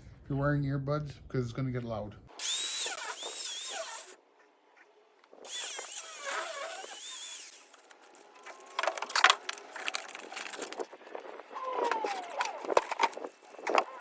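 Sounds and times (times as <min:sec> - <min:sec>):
angle grinder cutting metal: 0:02.4 - 0:04.2, 0:05.4 - 0:07.9.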